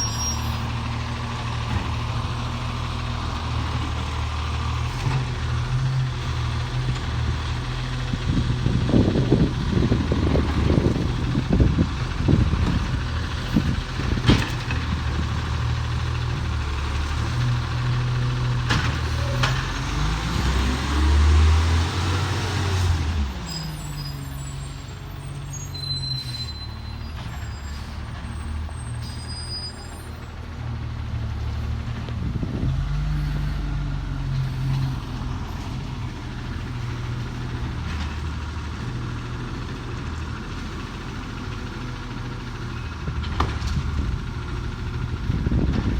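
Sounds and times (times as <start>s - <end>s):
garbage truck engine revving: 0.0s - 29.1s.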